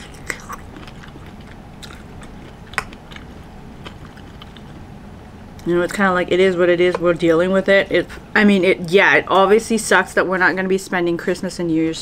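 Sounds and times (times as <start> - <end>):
close chewing of food: 0.0 - 6.0.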